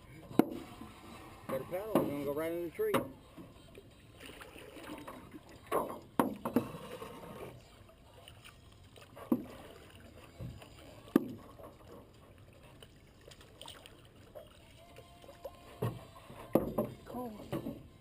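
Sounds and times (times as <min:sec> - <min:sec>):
faint water sounds: 0:00.0 - 0:18.0
paddles knocking against boat hull: 0:01.5 - 0:02.3, 0:05.7 - 0:06.8, 0:10.4 - 0:12.1, 0:15.8 - 0:17.9.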